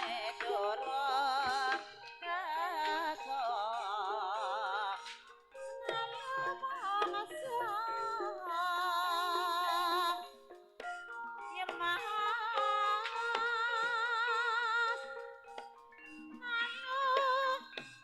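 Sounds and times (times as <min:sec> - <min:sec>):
ringing metallophone notes: 0:00.0 - 0:18.0
wavering vocal melody: 0:00.0 - 0:18.0.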